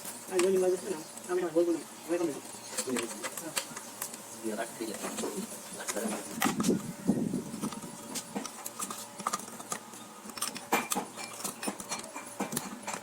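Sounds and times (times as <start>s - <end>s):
metal parts and tools clicking: 7.6s - 13.0s.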